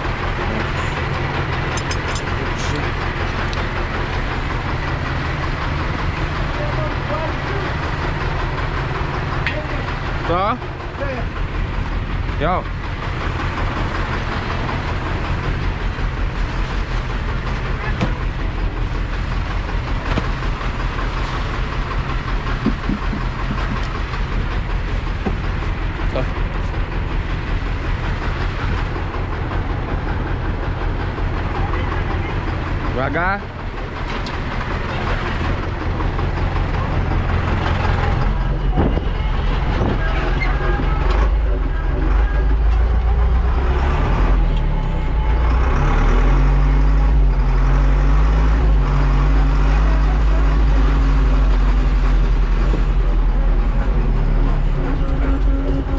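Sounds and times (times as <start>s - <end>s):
farm vehicle engine drone: 0.0s - 55.9s
sharp knocks: 22.6s - 23.8s.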